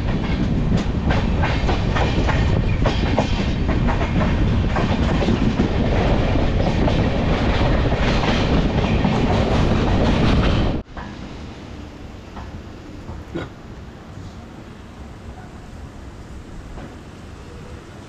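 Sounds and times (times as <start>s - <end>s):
train rumbling at speed: 0.0s - 18.0s.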